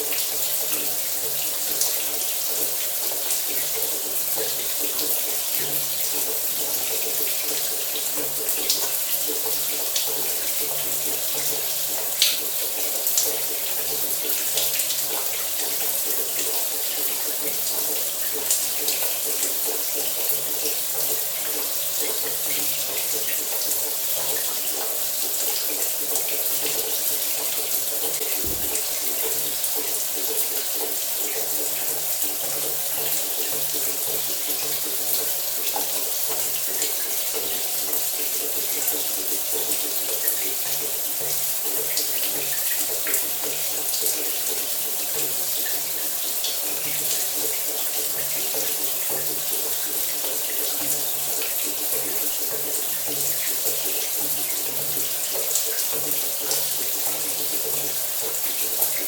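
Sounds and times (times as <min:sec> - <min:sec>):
shower spray splashing: 0:28.2 - 0:29.6.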